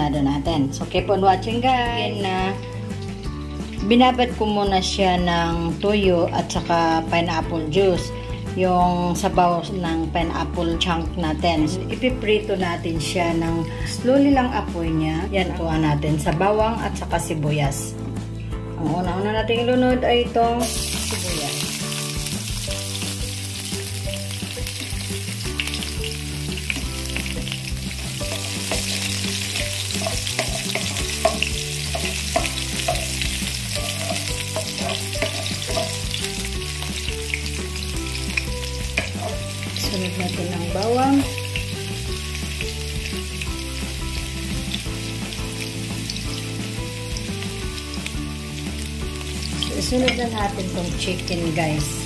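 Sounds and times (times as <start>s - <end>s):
onion sizzling in hot oil: 0.2s - 17.0s, 20.6s - 52.0s
wooden spatula stirring: 27.4s - 36.0s.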